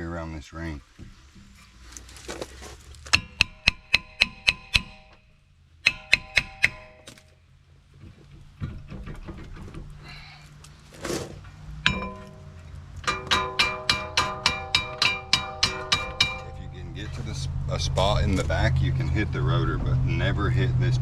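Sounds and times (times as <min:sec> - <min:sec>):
hammer blows ringing on metal: 0:03.2 - 0:07.1, 0:11.8 - 0:17.2.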